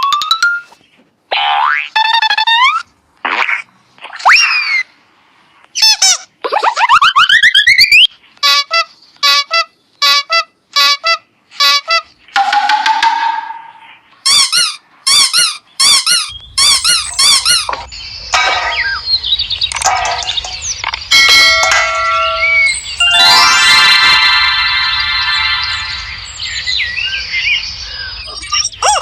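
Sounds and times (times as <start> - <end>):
cartoon electronic blips and tones: 11.6 - 19.1, 19.7 - 26.3.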